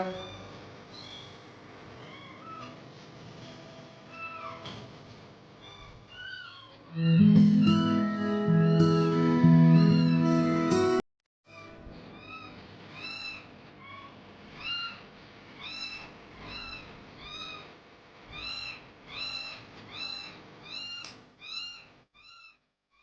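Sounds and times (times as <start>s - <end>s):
kitten meowing: 9.8s - 10.2s.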